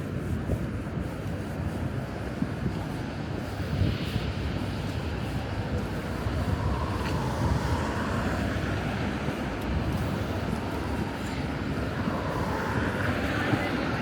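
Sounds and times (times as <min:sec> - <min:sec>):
road traffic rumble: 0:05.6 - 0:14.0.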